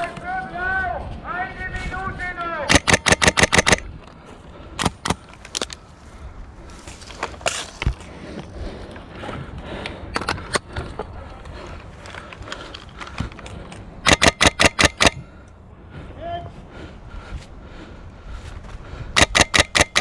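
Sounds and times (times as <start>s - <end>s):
airsoft gun shots: 2.7s - 3.8s, 14.1s - 15.2s, 19.2s - 20.0s
clicks: 2.7s - 3.8s, 14.1s - 15.2s, 19.2s - 20.0s.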